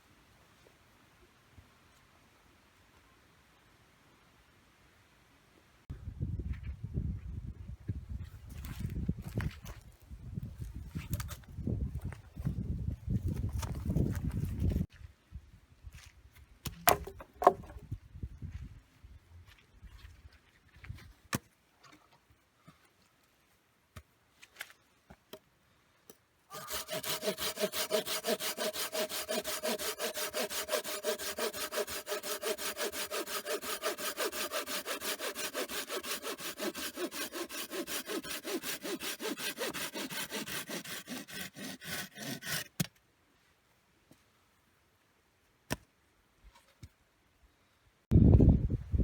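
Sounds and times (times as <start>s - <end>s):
hand saw cutting wood: 16.9s - 17.8s, 26.5s - 42.9s.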